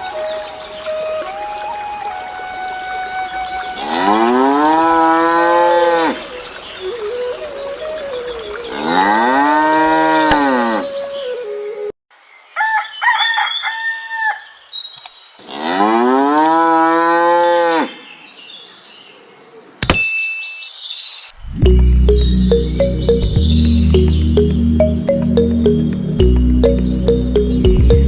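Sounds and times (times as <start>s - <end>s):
cow mooing: 3.8s - 6.2s
high-pitched chirping tones: 21.5s - 28.0s.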